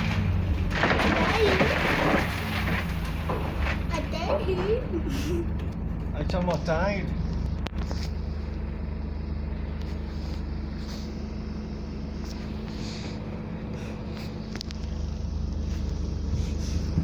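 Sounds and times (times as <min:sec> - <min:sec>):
bus diesel engine running: 0:00.0 - 0:17.0.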